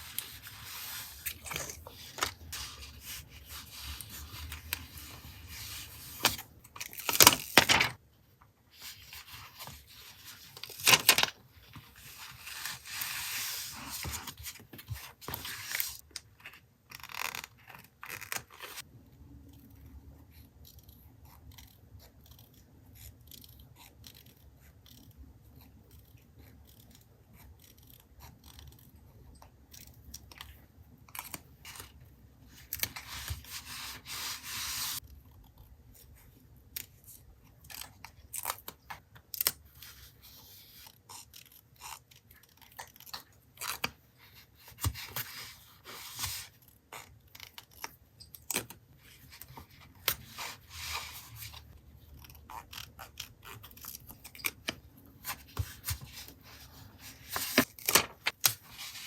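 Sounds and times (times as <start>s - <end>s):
paper rustling and peeling: 0.0s - 8.0s, 8.8s - 16.0s, 55.2s - 59.0s.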